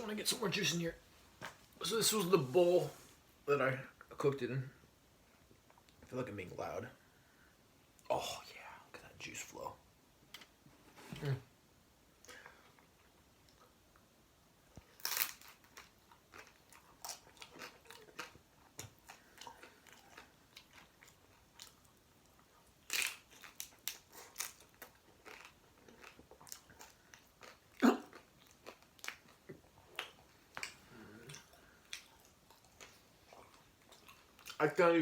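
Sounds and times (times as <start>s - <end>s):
person chewing food: 14.7s - 34.6s.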